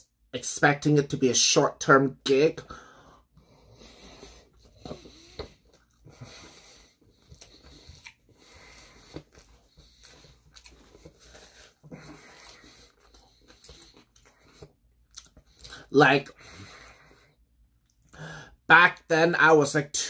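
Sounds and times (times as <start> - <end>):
soft breathing: 2.6 - 14.8, 15.4 - 18.6
faint chewing: 3.4 - 18.1.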